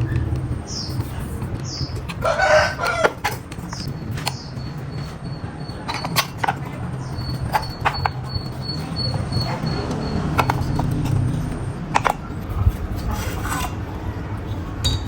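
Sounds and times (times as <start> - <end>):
chicken calling: 1.7 - 3.9.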